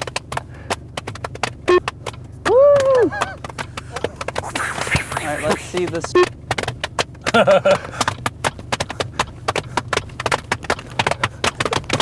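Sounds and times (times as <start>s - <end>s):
hand claps and knee slaps: 0.0s - 12.0s
short vocal sound: 3.8s - 5.9s.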